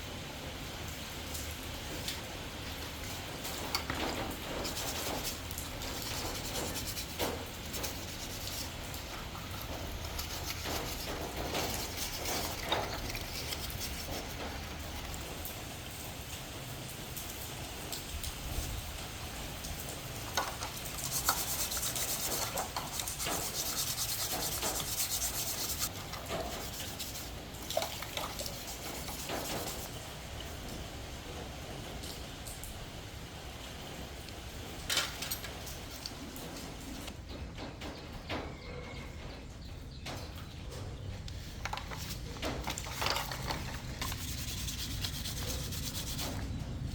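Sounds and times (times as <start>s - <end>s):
rubbing and scraping: 3.6s - 15.3s, 20.1s - 29.9s, 40.1s - 46.9s
small clicks and knocks: 20.2s - 25.0s, 40.0s - 44.6s.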